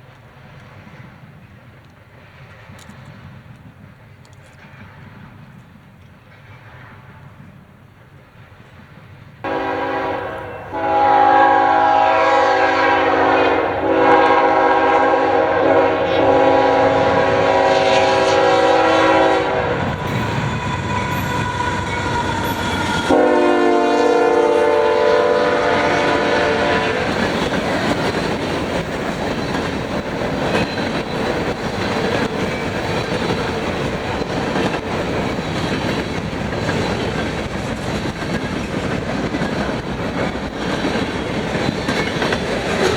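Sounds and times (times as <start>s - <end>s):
freight train rumbling on rails: 0.0s - 42.9s
locomotive air horn blasts: 9.4s - 27.2s.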